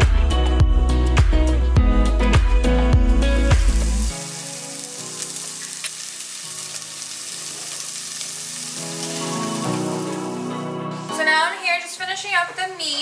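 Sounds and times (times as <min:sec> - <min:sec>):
onion frying in butter: 0:03.6 - 0:10.6.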